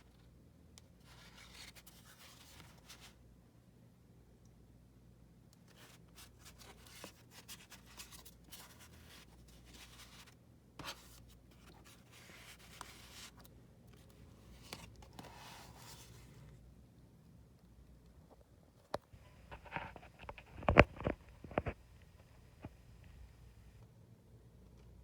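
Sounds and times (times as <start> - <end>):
cardstock rustling and sliding: 14.4 - 16.5.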